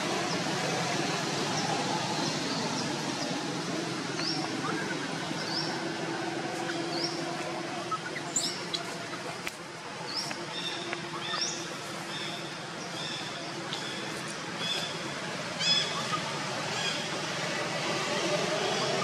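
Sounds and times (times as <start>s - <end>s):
outdoor background noise: 0.0s - 19.0s
bird chirping: 6.6s - 9.4s, 15.6s - 17.2s.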